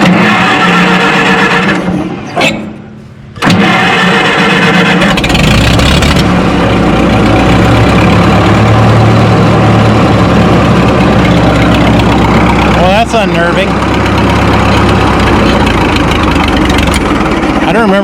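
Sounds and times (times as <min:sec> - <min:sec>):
tractor starter cranking: 0:00.0 - 0:02.8, 0:03.4 - 0:06.4, 0:10.6 - 0:18.0
tractor engine running: 0:00.0 - 0:18.0.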